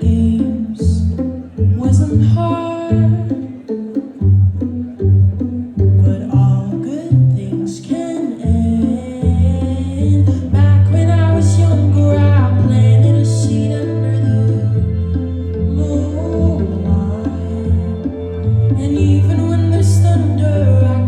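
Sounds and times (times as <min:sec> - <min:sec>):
plucked guitar: 0:00.0 - 0:21.0
woman singing pop song: 0:06.1 - 0:14.8, 0:18.8 - 0:21.0.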